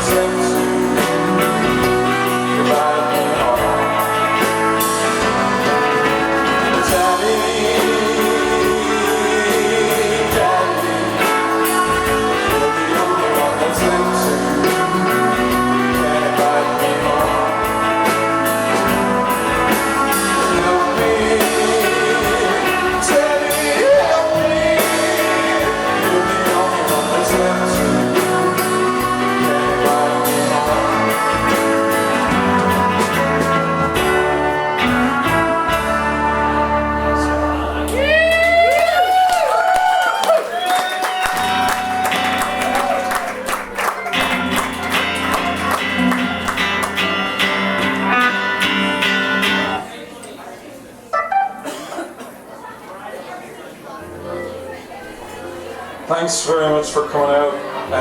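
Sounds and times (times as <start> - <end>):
person singing: 0.0 - 40.0
electric guitar: 0.0 - 40.1, 41.0 - 49.9
live rock band playing: 0.0 - 40.1, 40.7 - 49.9, 51.1 - 52.4
drum kit: 0.0 - 49.8.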